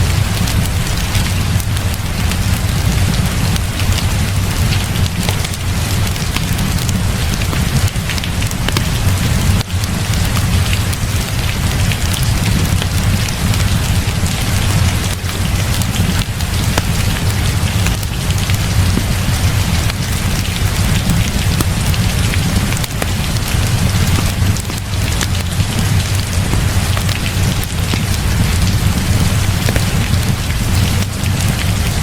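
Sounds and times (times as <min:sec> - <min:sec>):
heavy rain falling: 0:00.0 - 0:32.0
wood fire crackling and popping: 0:00.0 - 0:32.0
deep rumble: 0:11.7 - 0:32.0.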